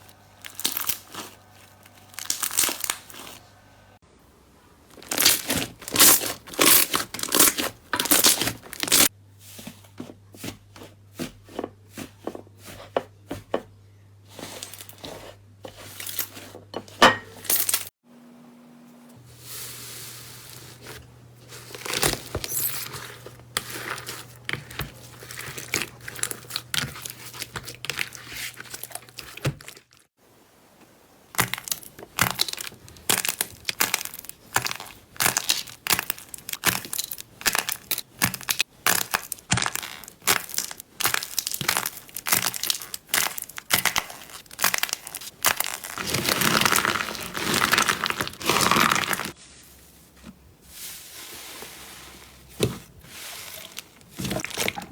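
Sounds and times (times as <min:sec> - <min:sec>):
slime crackling and popping: 0:00.4 - 0:03.2, 0:05.0 - 0:09.1, 0:31.4 - 0:49.4.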